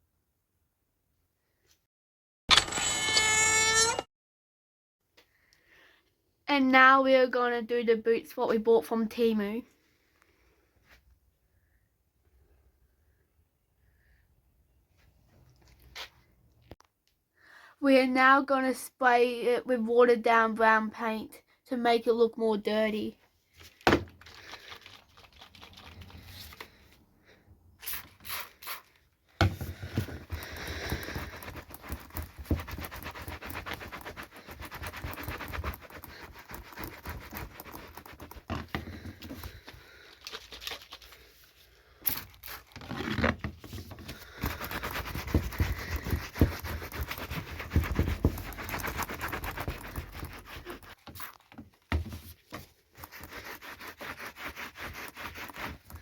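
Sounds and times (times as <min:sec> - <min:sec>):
spray bottle squirting puffs: 0:27.8 - 0:28.9.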